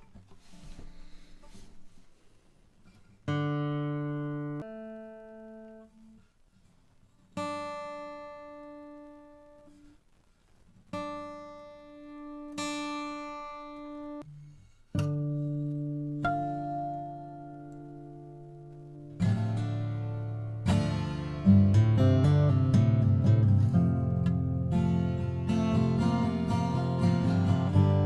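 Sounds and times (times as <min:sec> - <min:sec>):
acoustic guitar strings plucked: 0:12.6 - 0:28.0.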